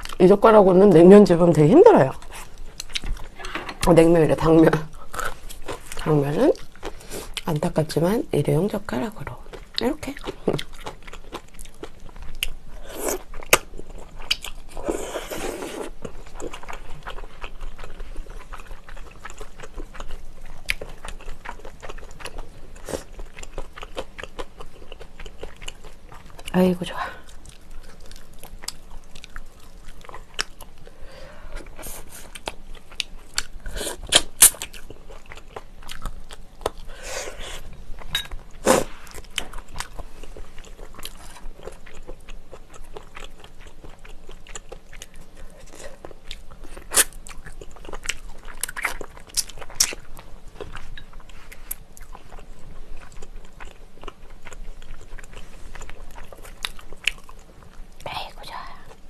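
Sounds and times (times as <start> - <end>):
crunchy chewing and biting: 38.5 - 58.0.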